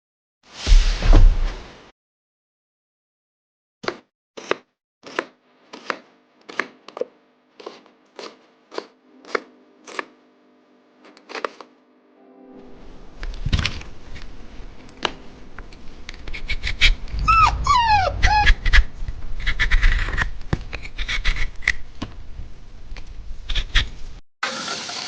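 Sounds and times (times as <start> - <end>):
puppy whimpering: 17.1 - 18.9.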